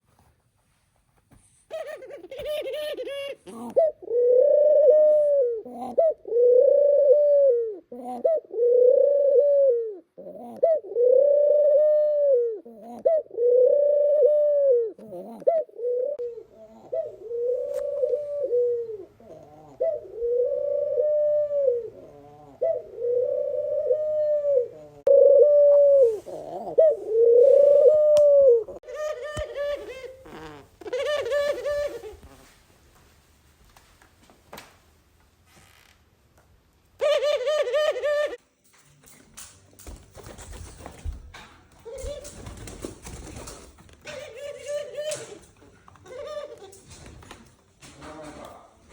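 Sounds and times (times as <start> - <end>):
dove cooing: 1.7 - 32.5, 37.0 - 38.4, 44.0 - 46.9.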